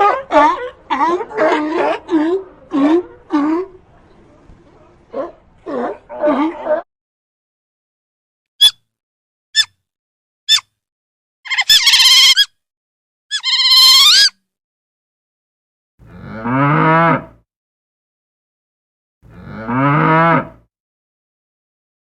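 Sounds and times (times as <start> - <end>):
high-pitched animal call: 10.5 - 10.7, 11.5 - 12.6, 13.3 - 14.4
cow mooing: 16.0 - 17.4, 19.3 - 20.7.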